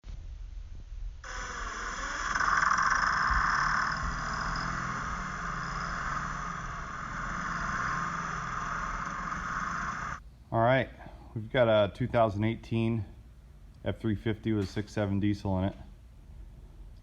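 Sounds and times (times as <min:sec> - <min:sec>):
diesel truck engine running: 0:01.3 - 0:10.2.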